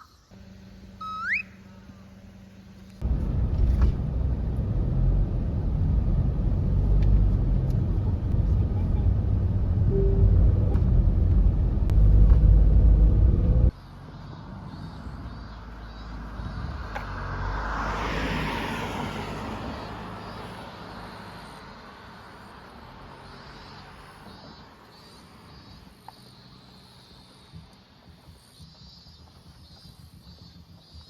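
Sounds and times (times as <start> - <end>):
low vehicle rumble: 0.4 - 21.2
car passing: 0.4 - 24.6.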